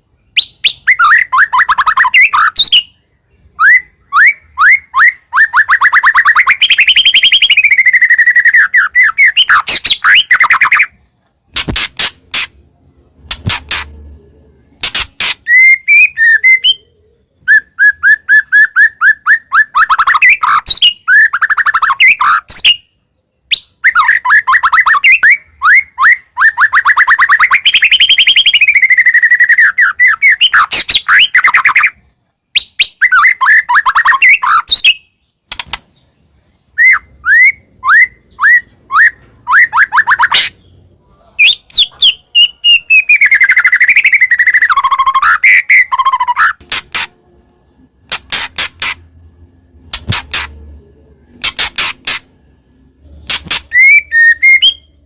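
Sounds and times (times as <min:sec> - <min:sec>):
bird singing whistles and trills: 0:00.0 - 0:11.0, 0:11.6 - 0:35.4, 0:36.7 - 0:55.0
bird clicking notes: 0:35.5 - 0:35.9, 0:46.6 - 0:47.1, 0:48.0 - 0:49.1.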